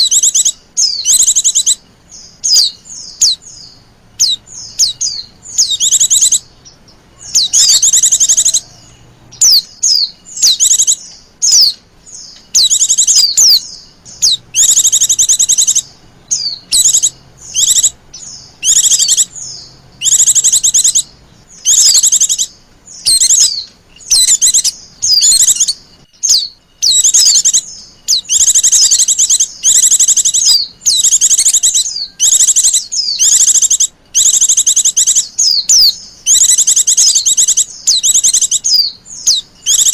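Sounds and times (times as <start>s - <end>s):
white-eye chattering warbles: 2.5s - 11.7s, 12.5s - 39.9s.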